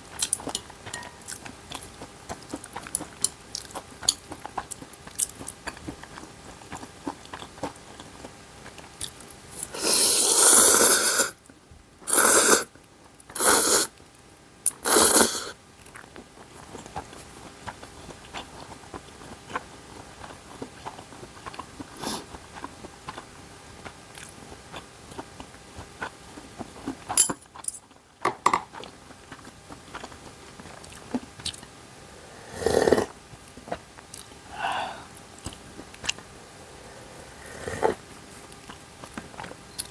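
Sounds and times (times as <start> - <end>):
quiet chewing: 0.0 - 39.9
person slurping noodles: 9.6 - 11.4, 12.1 - 12.7, 13.4 - 13.9, 14.8 - 15.6, 32.2 - 33.2, 34.5 - 35.1, 36.5 - 38.0.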